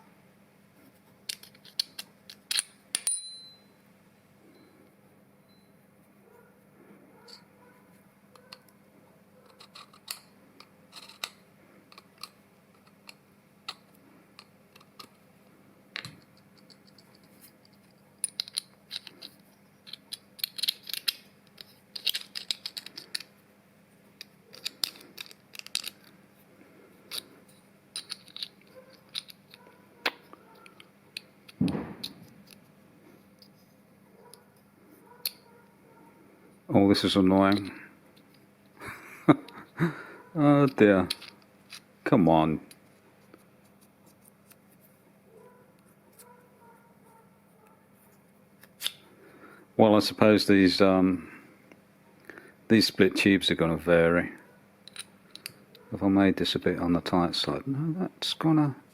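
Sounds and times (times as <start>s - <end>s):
faint hum: 0.0s - 58.9s
small metal parts clinking: 1.2s - 3.7s, 9.4s - 15.2s, 16.0s - 23.4s, 24.2s - 26.2s, 27.0s - 32.6s, 37.0s - 38.4s, 40.6s - 41.9s, 54.8s - 55.9s.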